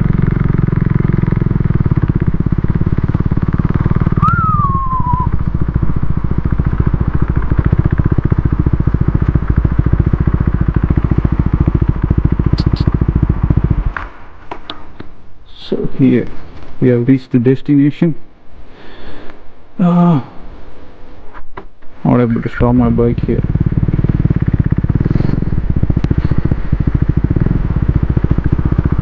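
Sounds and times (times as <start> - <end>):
motorcycle engine at low revs: 0.0 - 15.0, 22.5 - 29.0.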